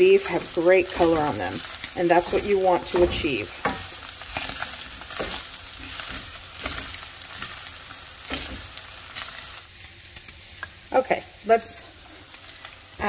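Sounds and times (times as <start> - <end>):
meat sizzling in a pan: 0.0 - 13.0
wooden spatula scraping a pan: 0.8 - 7.6.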